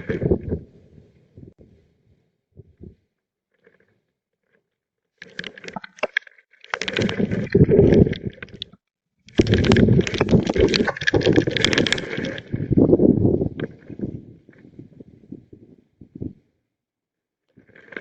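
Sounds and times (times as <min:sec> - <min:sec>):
wind buffeting microphone: 0:12.5 - 0:16.4.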